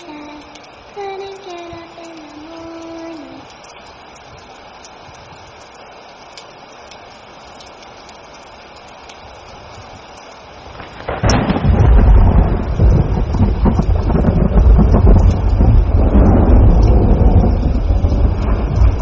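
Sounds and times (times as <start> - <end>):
steady rain: 0.0 - 19.0
thunder rumbling: 10.6 - 19.0.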